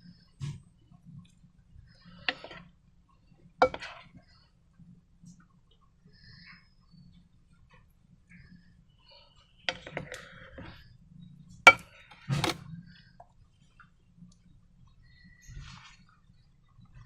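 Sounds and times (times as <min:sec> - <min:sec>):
soft rustling: 0:14.8 - 0:17.0.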